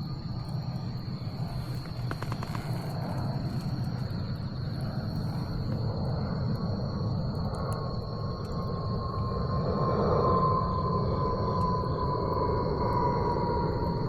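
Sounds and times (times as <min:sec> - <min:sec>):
steady low rumble: 0:00.0 - 0:14.0
bonfire crackling and popping: 0:00.2 - 0:06.7.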